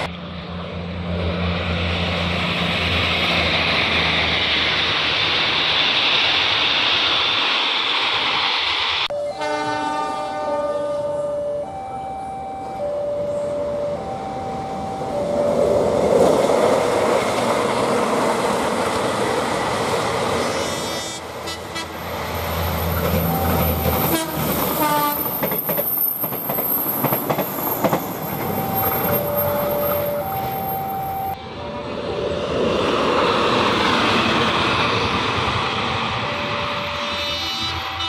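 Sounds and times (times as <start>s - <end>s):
train engine rumble: 0.0s - 38.0s
two-tone crossing alarm: 9.1s - 16.7s, 22.7s - 32.2s, 35.5s - 38.0s
train horn: 9.2s - 11.9s, 20.5s - 22.1s, 23.2s - 25.4s, 36.3s - 38.0s
wheels clattering and squealing: 22.7s - 31.4s.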